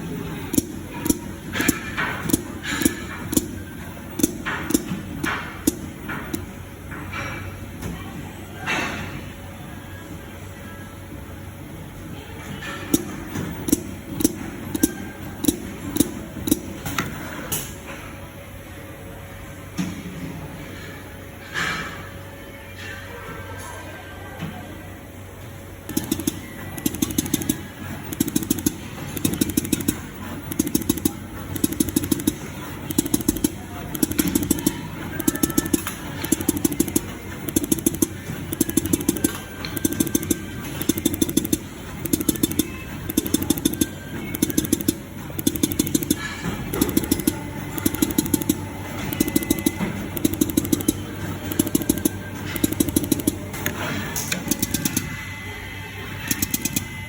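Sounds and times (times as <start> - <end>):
machine steady hum: 0.0 - 7.4, 24.9 - 57.0
machine rapid ticking: 0.5 - 6.4, 12.9 - 16.8, 25.9 - 55.2, 56.2 - 57.0.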